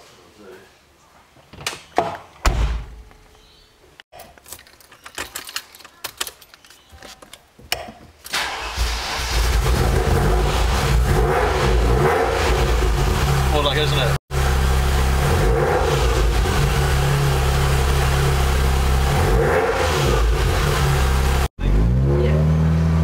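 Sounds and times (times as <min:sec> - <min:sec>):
loud thump: 0:02.0 - 0:03.1
knocks and clicks of handling: 0:04.1 - 0:08.3
car engine starting and idling: 0:08.3 - 0:23.0.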